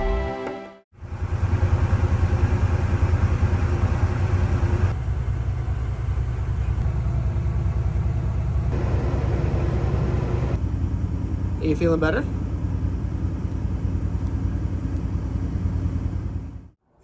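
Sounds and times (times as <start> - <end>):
air conditioner humming: 8.7 - 10.6
generator running: 8.7 - 10.6.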